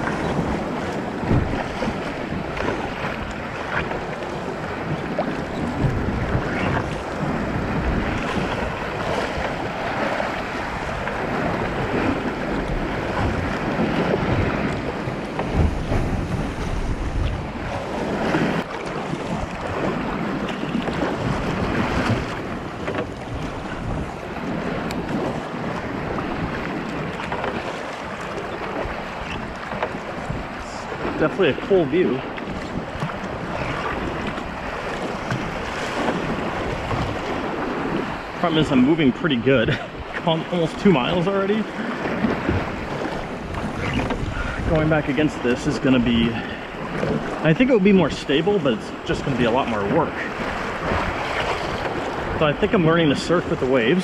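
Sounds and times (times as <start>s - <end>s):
waves splashing around kayak: 0.0s - 54.0s
wind buffeting microphone: 0.0s - 54.0s.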